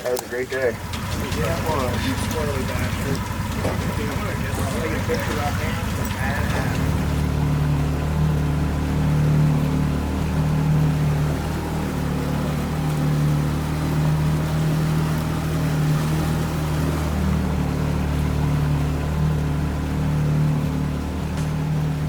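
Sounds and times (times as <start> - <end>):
boat motor droning: 0.0 - 22.0.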